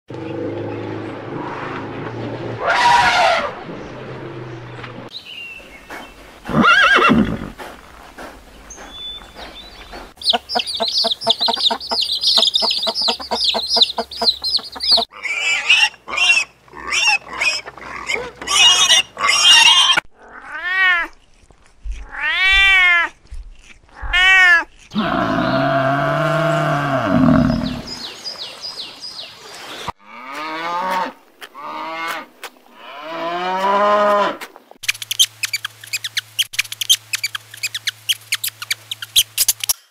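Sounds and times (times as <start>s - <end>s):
deep drawn-out animal call: 0.1s - 4.8s, 24.0s - 27.9s.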